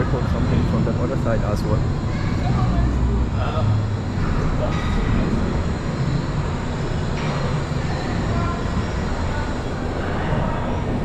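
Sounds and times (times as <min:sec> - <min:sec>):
suspension railway train rumbling: 0:00.0 - 0:11.0.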